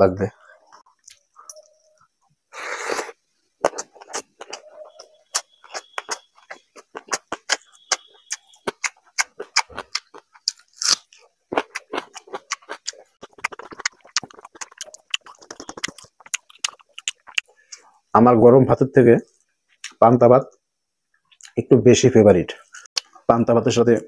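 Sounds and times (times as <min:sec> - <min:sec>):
breathy hiss: 0:02.5 - 0:03.2
wet chewing and lip smacks: 0:03.6 - 0:17.8.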